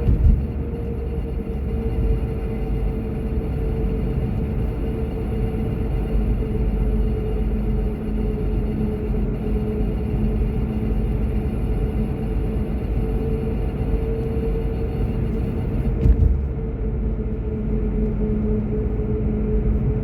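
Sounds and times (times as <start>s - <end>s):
thump of road bump: 0.0s - 0.5s, 15.9s - 16.6s
car road and engine rumble: 0.0s - 20.0s.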